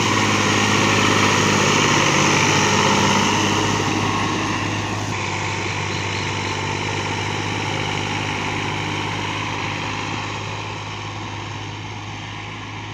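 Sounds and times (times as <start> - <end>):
tractor diesel engine running: 0.0 - 12.9.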